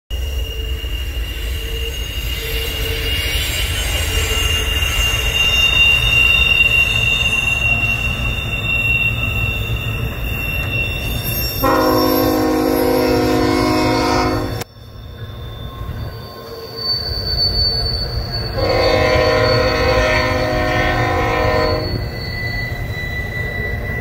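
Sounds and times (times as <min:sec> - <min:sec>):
freight train rumble: 0:00.1 - 0:24.0
high-pitched wheel squeal: 0:00.1 - 0:24.0
locomotive air horn chord: 0:11.6 - 0:14.7, 0:18.6 - 0:22.0.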